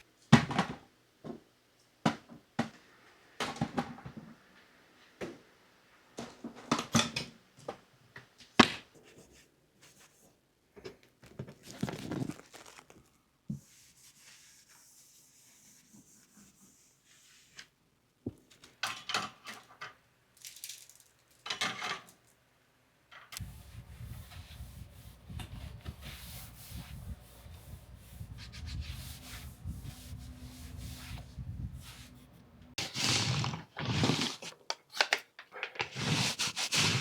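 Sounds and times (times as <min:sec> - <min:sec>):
rustling and rubbing: 0:11.2 - 0:17.7, 0:23.4 - 0:34.5, 0:35.8 - 0:37.0.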